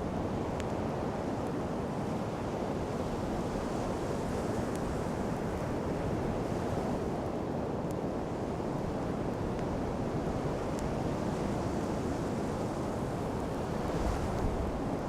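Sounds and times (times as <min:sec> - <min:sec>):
surf rushing on sand beach: 0:00.0 - 0:15.0
wind on microphone: 0:00.0 - 0:15.0
campfire crackling: 0:04.2 - 0:06.5, 0:07.2 - 0:15.0.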